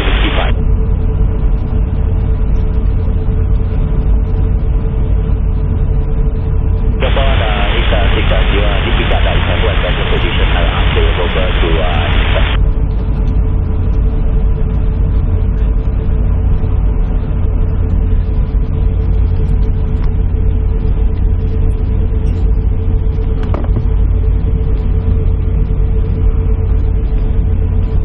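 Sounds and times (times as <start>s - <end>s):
steady mid-pitched tone: 0.0s - 0.6s, 6.9s - 13.6s
airliner cabin rumble and hum: 0.0s - 28.0s.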